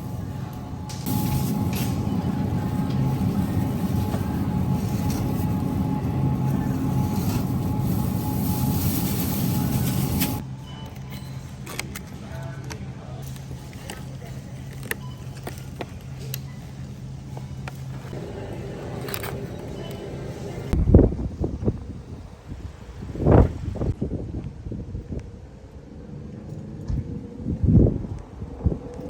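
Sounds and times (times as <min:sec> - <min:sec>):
mechanical rumble with low hum: 0:00.0 - 0:22.3.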